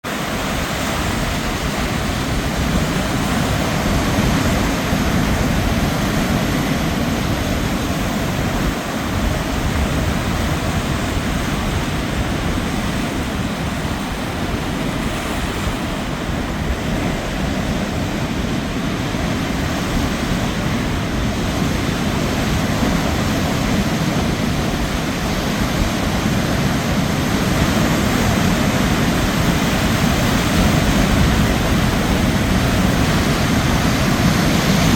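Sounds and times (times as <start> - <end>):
ocean surf: 0.0 - 34.9
wind: 0.0 - 34.9.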